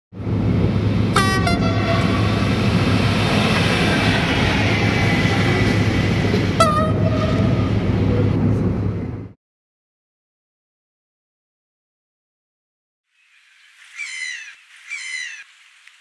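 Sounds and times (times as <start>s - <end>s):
train rumbling at speed: 0.1s - 9.4s
train horn blasts: 1.0s - 8.1s.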